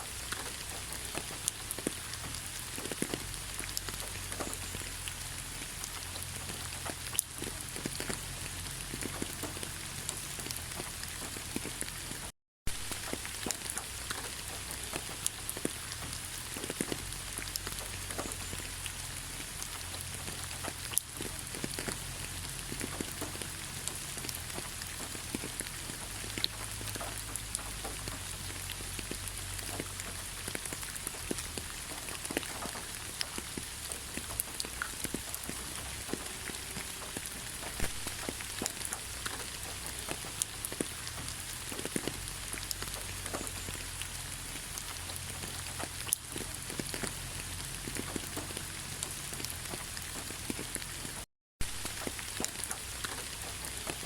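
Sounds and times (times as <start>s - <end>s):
raindrops ticking on hard surface: 0.0s - 54.0s
steady rainfall: 0.0s - 54.0s.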